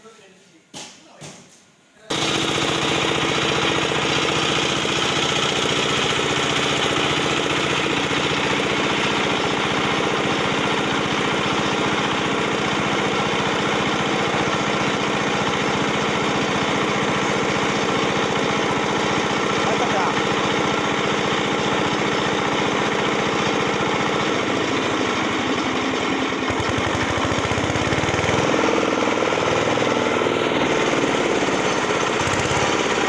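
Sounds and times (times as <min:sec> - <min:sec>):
concrete cutter engine running: 0:02.1 - 0:33.0.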